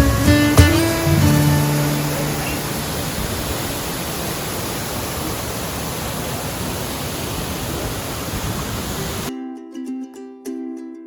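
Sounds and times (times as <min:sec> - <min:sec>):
guitar note: 0:00.0 - 0:03.0
waterfall roar: 0:00.0 - 0:09.3.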